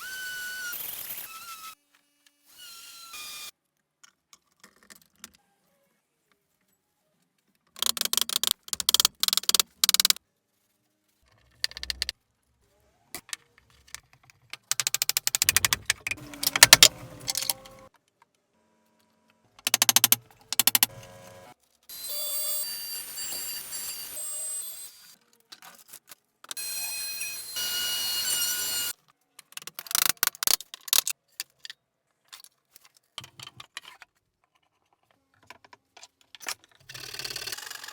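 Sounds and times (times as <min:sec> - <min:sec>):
rapid clicking tool strokes: 0:19.7 - 0:20.9.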